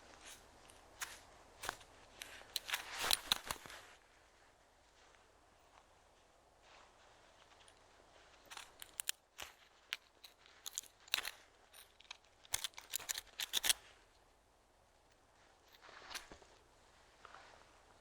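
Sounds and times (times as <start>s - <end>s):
sharp crunches and crackles: 8.4s - 13.9s.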